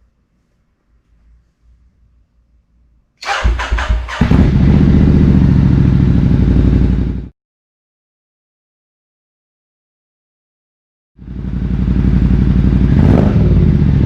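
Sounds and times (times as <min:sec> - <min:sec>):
motorcycle engine cranking: 0:03.2 - 0:04.8
motorcycle engine idling loud: 0:03.2 - 0:07.3, 0:11.2 - 0:14.0.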